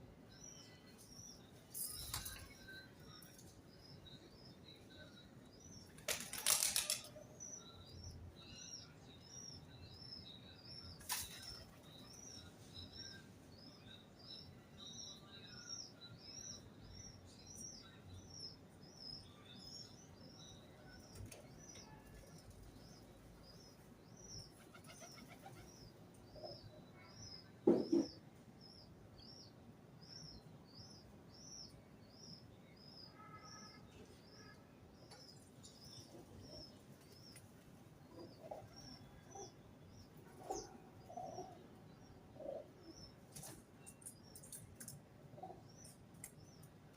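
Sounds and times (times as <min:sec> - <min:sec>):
wings flapping: 0:06.0 - 0:07.1.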